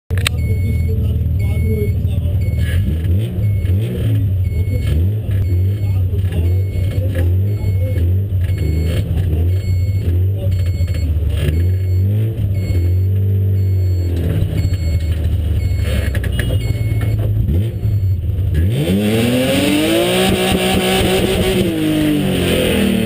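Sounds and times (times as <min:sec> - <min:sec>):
car engine idling and revving: 0:00.1 - 0:23.0.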